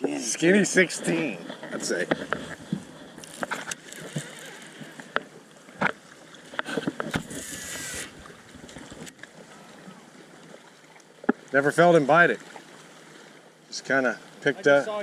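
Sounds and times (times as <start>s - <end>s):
knocks and clicks on boat: 1.5s - 9.3s
short hissing rush: 7.2s - 8.4s.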